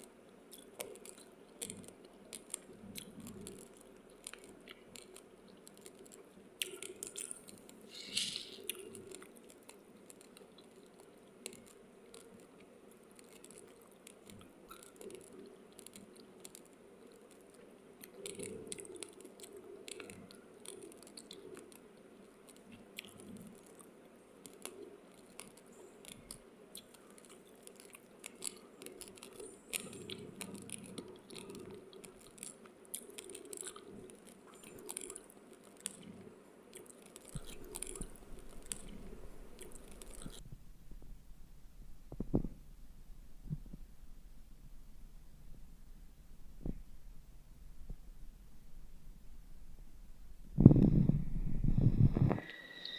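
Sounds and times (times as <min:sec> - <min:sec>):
rice grains being chewed: 0:00.0 - 0:40.5.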